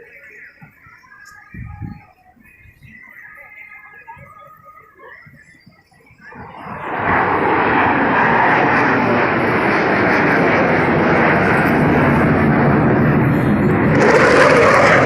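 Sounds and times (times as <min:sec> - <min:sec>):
aircraft engine noise: 0:05.2 - 0:15.0.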